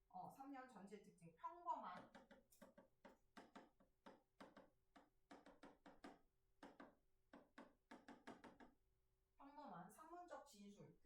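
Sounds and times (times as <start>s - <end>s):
pen tapping while writing: 1.9s - 8.8s.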